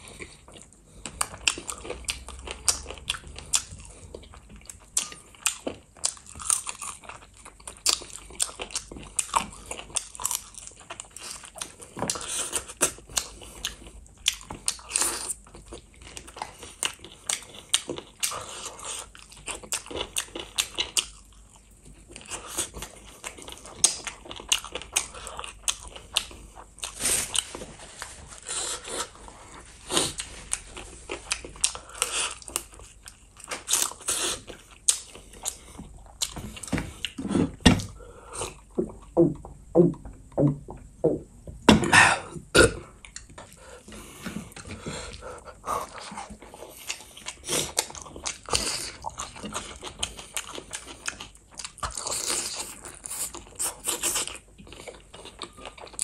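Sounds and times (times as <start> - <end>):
person chewing wet food: 0.0 - 56.0.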